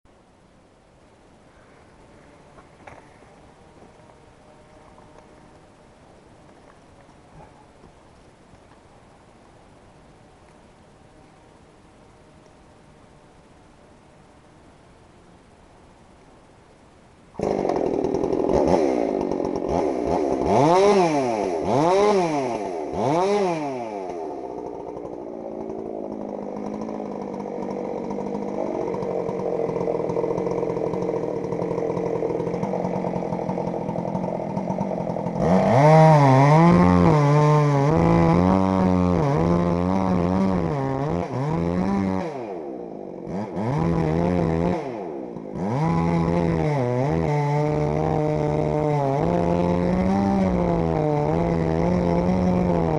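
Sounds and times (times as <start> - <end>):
chainsaw revving: 17.3 - 52.9.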